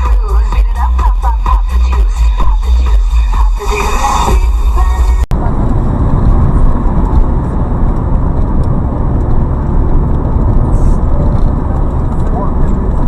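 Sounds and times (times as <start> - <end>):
music: 0.0 - 5.3
car road and engine noise: 0.0 - 13.0.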